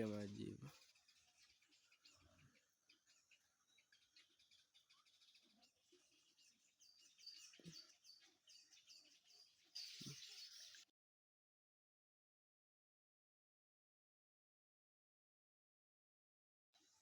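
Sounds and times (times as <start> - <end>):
faint bird chirping: 0.0 - 10.9, 16.8 - 17.0.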